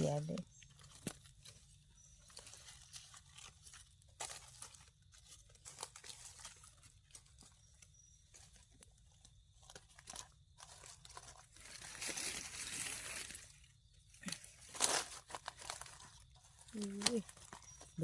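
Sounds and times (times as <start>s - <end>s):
leaves crunching underfoot: 0.0s - 18.0s
twigs snapping: 0.6s - 1.6s, 2.2s - 7.6s, 14.2s - 18.0s.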